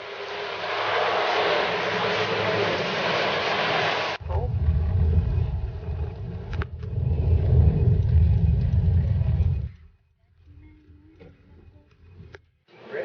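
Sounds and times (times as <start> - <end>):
heavy rain hissing: 0.0 - 5.0
car rumbling on road: 4.2 - 12.4.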